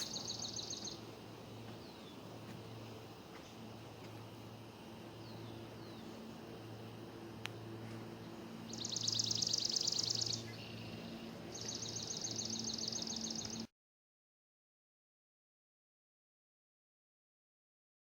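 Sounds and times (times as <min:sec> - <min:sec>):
songbird high-pitched trills: 0:00.0 - 0:01.1, 0:05.1 - 0:06.3, 0:08.2 - 0:13.7
faint steady hum: 0:00.0 - 0:13.7.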